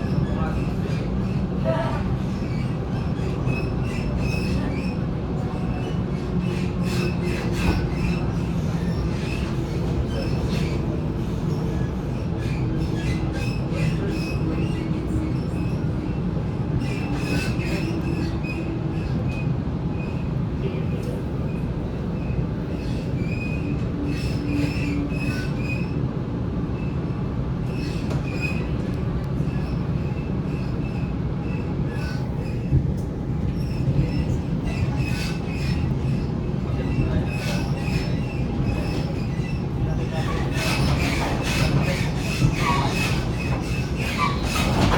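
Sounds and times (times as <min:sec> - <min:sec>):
electric train rumble: 0:00.0 - 0:44.9
rail clicks: 0:27.6 - 0:44.9
high wheel squeal: 0:33.6 - 0:44.9.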